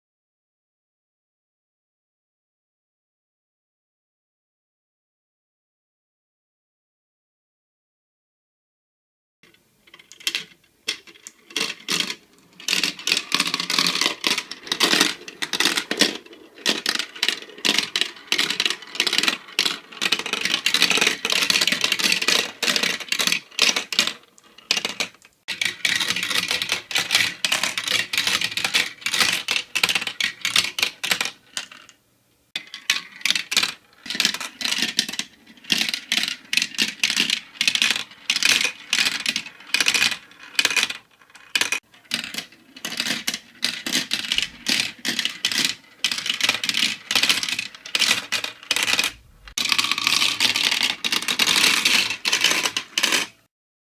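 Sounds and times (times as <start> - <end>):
marbles clattering down a run: 9.9 - 31.7, 32.6 - 53.3.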